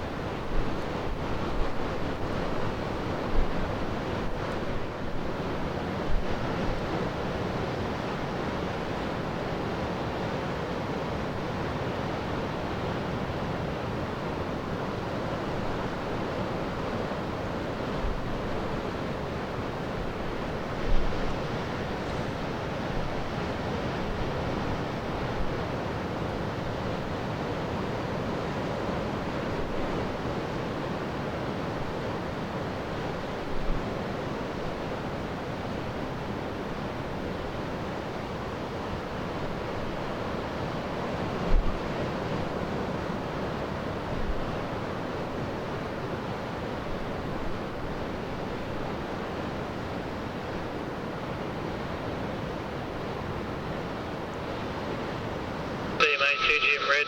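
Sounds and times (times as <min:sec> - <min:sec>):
wind: 0:00.0 - 0:57.0
surf: 0:34.8 - 0:57.0.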